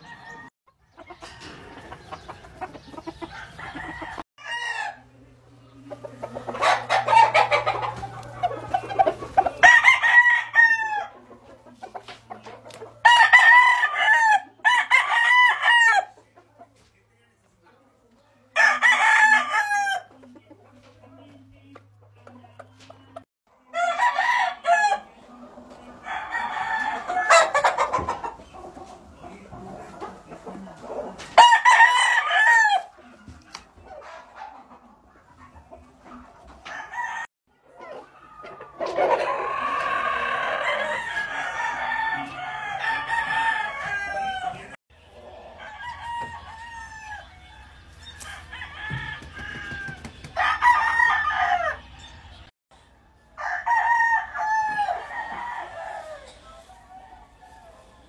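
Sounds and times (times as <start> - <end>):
roosters crowing: 0.0 - 5.3, 6.2 - 16.2, 18.5 - 20.2, 23.6 - 28.8, 30.5 - 33.1, 36.5 - 58.0.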